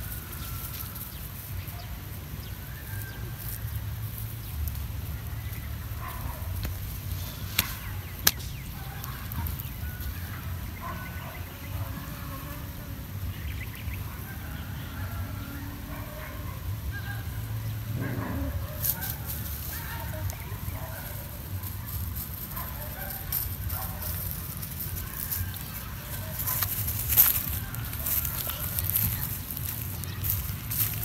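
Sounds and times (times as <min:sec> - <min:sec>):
steady low rumble: 0:16.7 - 0:31.0.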